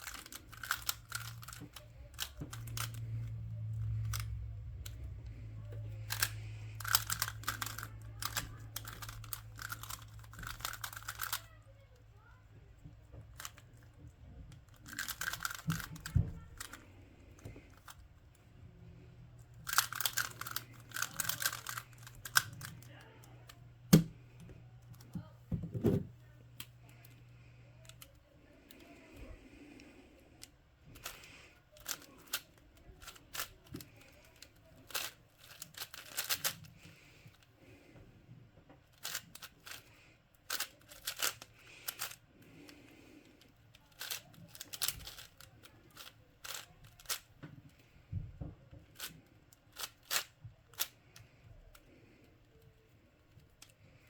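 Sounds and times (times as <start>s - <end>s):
low hum: 0.0s - 11.1s
puzzle cube clicking: 0.0s - 11.5s, 14.7s - 18.0s, 19.6s - 22.9s, 31.0s - 36.8s, 38.9s - 42.8s, 43.9s - 47.2s.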